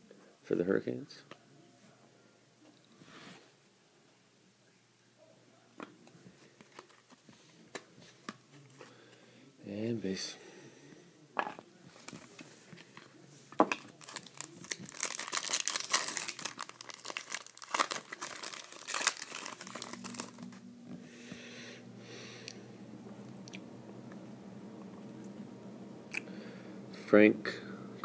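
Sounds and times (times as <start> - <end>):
faint steady hum: 0.0 - 28.0
foil wrapper crinkling and tearing: 13.7 - 20.5.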